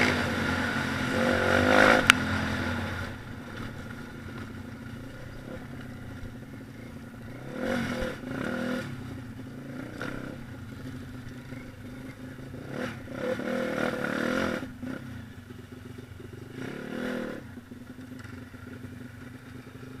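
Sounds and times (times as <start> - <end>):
pit bike engine revving: 0.0 - 20.0.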